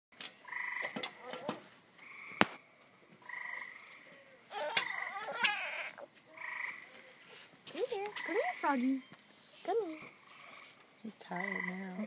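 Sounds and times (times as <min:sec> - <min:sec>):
frog whining calls: 0:00.4 - 0:02.4, 0:03.2 - 0:07.1, 0:10.0 - 0:12.0.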